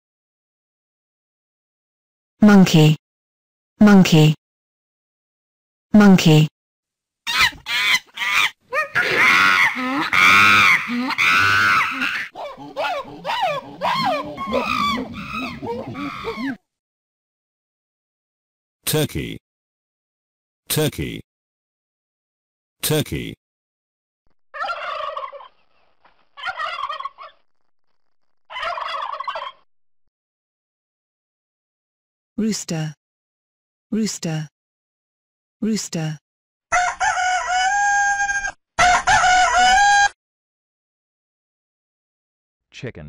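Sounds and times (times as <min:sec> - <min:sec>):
monkey screaming: 0:07.3 - 0:16.6, 0:36.7 - 0:40.2
turkey gobbling: 0:07.3 - 0:16.6, 0:24.6 - 0:25.8, 0:26.4 - 0:27.4, 0:28.5 - 0:29.6, 0:36.7 - 0:40.1.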